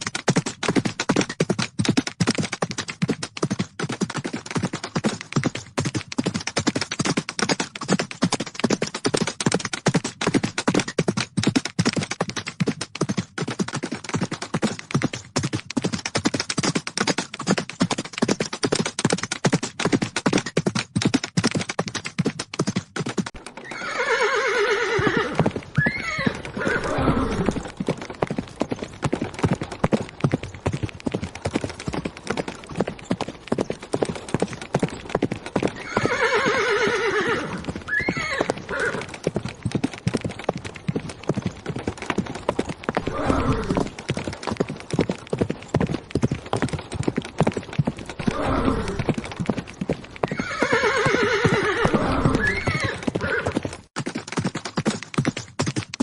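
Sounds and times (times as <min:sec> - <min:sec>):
horses galloping hoofbeats: 0:00.0 - 0:56.0
horse neighing: 0:23.6 - 0:27.7, 0:35.8 - 0:39.1, 0:43.0 - 0:43.9, 0:48.2 - 0:49.1, 0:50.3 - 0:53.6.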